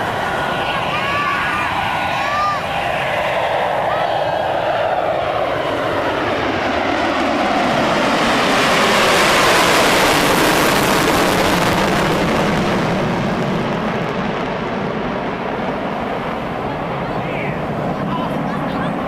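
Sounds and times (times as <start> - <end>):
jet bomber flyby: 0.0 - 19.0.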